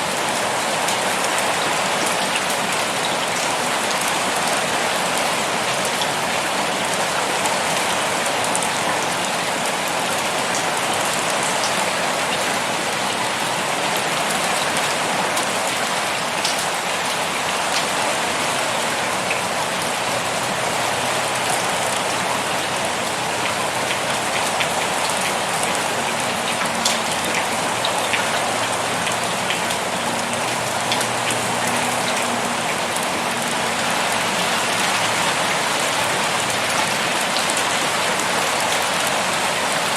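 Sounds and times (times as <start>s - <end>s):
heavy pouring rain: 0.0s - 39.9s
rain drop ticks: 23.0s - 33.6s.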